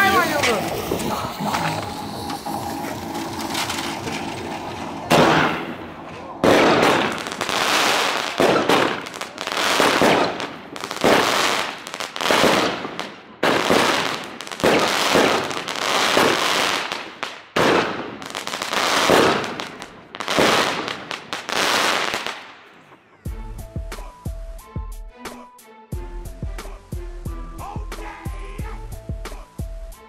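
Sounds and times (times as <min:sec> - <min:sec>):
firework battery bangs: 0:00.0 - 0:22.6.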